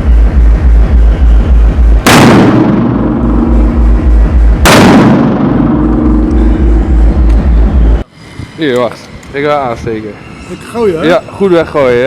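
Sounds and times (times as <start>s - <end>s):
firecracker bangs: 0.0s - 7.2s
music with heavy bass beat: 0.0s - 8.0s.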